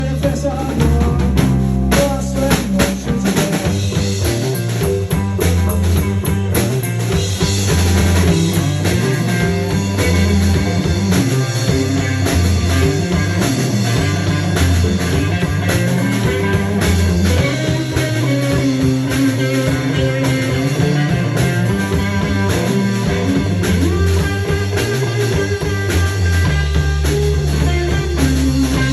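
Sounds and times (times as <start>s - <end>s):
rock music with electric guitar: 0.0s - 28.9s.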